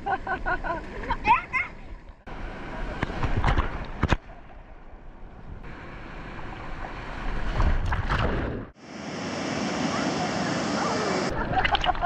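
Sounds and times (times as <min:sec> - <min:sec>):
churning surf: 0:02.3 - 0:04.2, 0:05.5 - 0:12.0.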